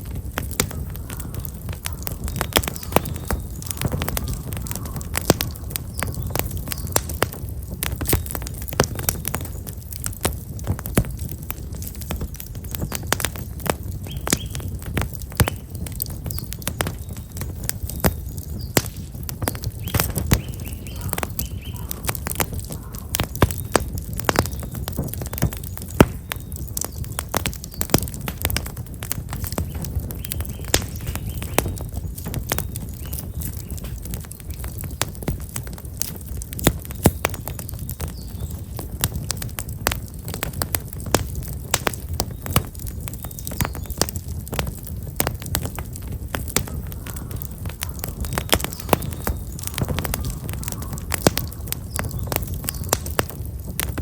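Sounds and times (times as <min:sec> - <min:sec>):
campfire crackling and popping: 0:00.0 - 0:54.0
low fire rumble: 0:00.0 - 0:54.0
small bird chirping: 0:00.7 - 0:07.2, 0:19.5 - 0:22.1, 0:29.5 - 0:31.9, 0:46.7 - 0:53.2.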